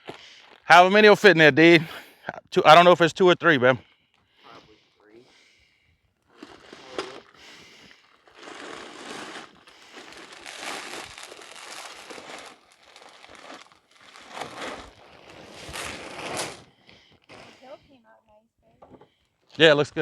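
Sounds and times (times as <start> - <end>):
plastic bag crinkling: 6.3 - 17.6
corn kernels pouring: 8.3 - 16.6.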